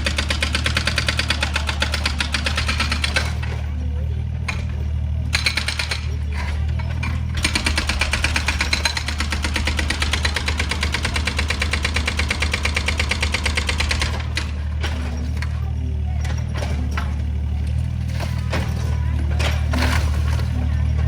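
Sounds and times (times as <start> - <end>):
excavator diesel engine running: 0.0 - 21.0
rapid metallic clatter: 4.4 - 21.0.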